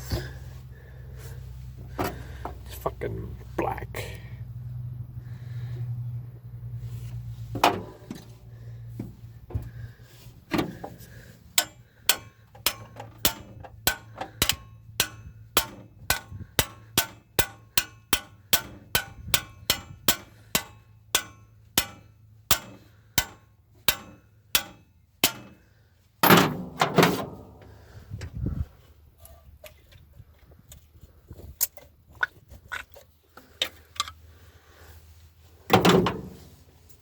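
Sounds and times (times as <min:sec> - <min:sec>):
metal clatter: 0:10.5 - 0:27.7.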